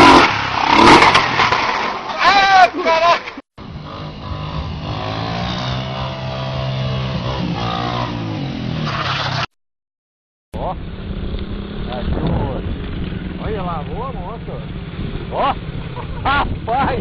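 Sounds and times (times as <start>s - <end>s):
motorcycle engine revving: 0.0s - 2.0s, 3.6s - 9.6s, 10.6s - 17.0s.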